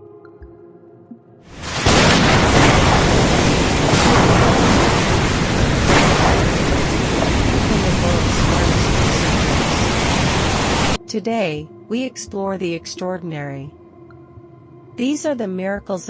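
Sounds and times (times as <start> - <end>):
loud steady rushing noise: 1.5 - 11.0.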